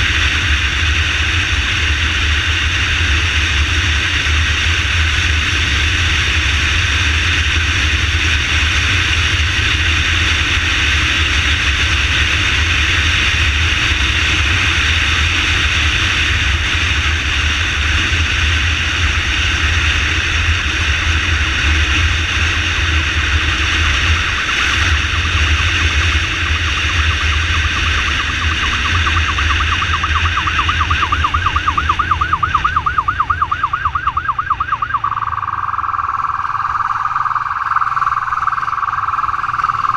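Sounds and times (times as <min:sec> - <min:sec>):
motorcycle engine rumble: 0:00.0 - 0:39.9
wind: 0:00.0 - 0:39.9
ambulance siren: 0:23.8 - 0:39.9.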